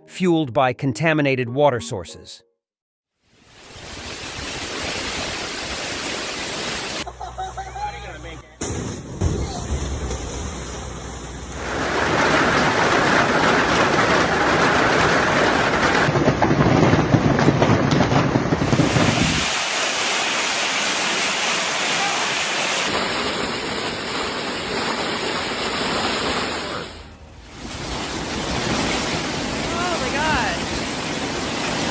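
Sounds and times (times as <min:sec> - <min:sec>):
heavy rain hissing: 0:18.6 - 0:31.9.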